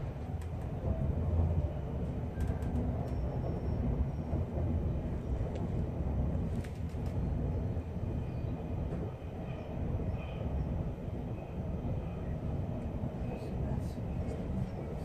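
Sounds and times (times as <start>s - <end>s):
passenger train rumbling: 0.0s - 15.0s
faint clicks: 2.3s - 3.2s, 6.5s - 7.3s.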